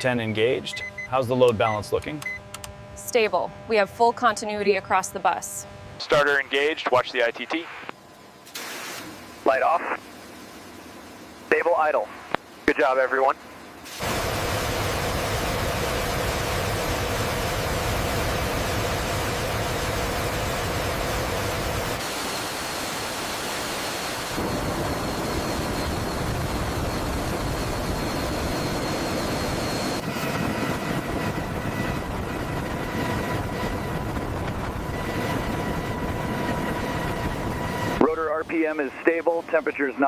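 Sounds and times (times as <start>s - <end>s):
thin turbine whine: 0.0s - 40.0s
helicopter engines idling: 9.1s - 40.0s.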